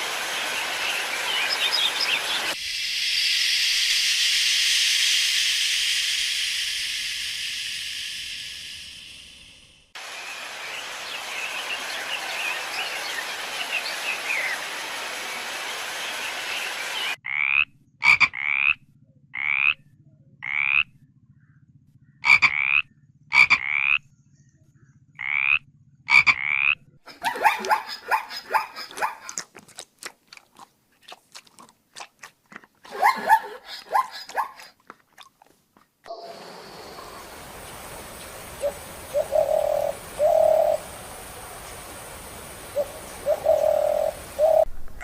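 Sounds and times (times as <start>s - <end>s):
steady hiss: 0.0s - 17.2s, 36.1s - 44.7s
animal eating with crunching: 28.6s - 36.1s.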